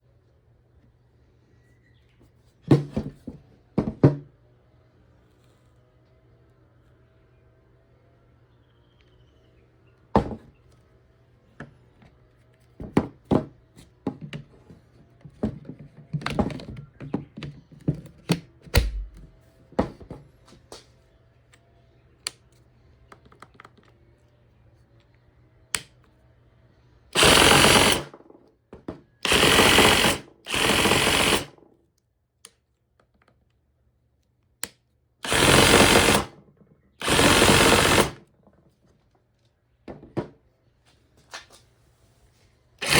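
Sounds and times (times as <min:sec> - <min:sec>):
reciprocating saw bursts: 0:27.2 - 0:28.1, 0:29.2 - 0:31.5, 0:35.2 - 0:36.3, 0:37.0 - 0:38.2.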